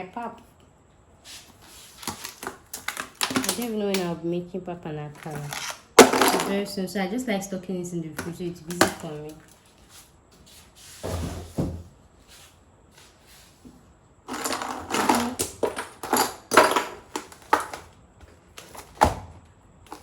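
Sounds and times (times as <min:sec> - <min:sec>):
plastic bags rustling: 0:01.9 - 0:03.9, 0:05.1 - 0:06.7, 0:14.3 - 0:17.9
knocks of containers: 0:06.0 - 0:06.6.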